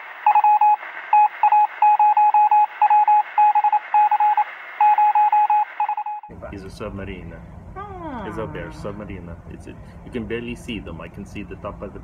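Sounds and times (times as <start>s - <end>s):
radio-like hiss: 0.0s - 5.0s
morse code beeps: 0.3s - 6.3s.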